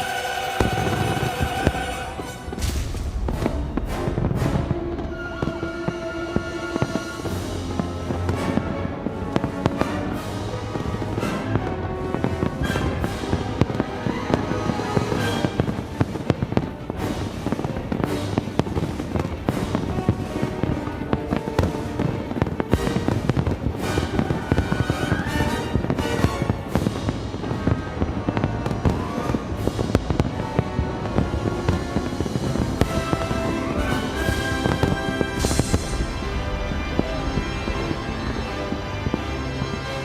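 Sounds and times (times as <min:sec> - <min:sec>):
broadcast music: 0:00.0 - 0:40.0
fireworks bursting and crackling: 0:00.0 - 0:40.0.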